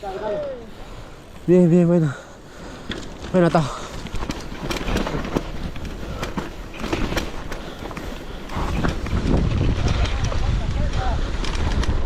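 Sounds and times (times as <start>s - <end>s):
tyres rumbling on loose ground: 1.5s - 12.0s
bike knocks and clacks: 2.7s - 12.0s.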